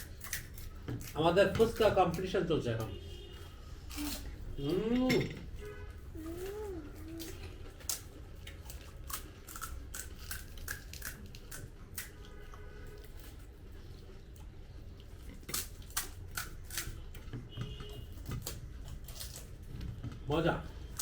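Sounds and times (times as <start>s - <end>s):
crisp shells crunching when bitten: 7.8s - 12.2s.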